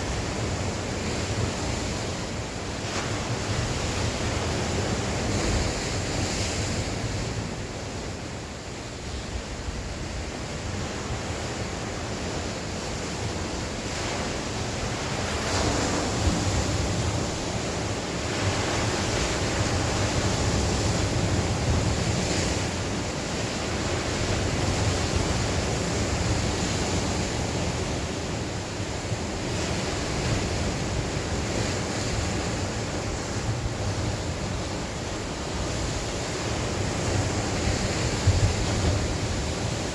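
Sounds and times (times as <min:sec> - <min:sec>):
sea waves breaking on shore: 0:00.0 - 0:39.9
wind on microphone: 0:09.0 - 0:39.9.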